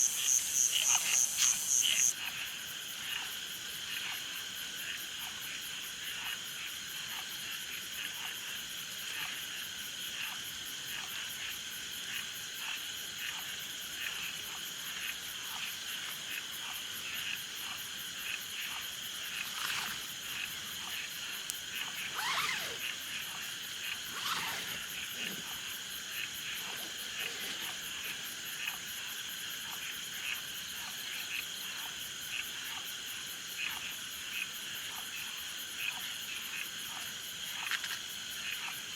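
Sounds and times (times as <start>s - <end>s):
frogs calling: 0.0s - 2.2s, 14.9s - 31.6s
insect trill: 0.0s - 38.9s.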